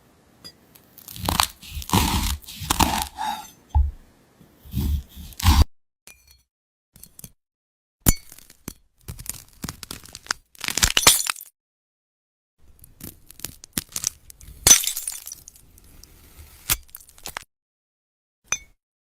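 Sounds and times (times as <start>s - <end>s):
brittle fruit cracking when sliced: 1.0s - 3.9s, 8.2s - 11.5s, 12.8s - 14.2s, 16.8s - 17.4s.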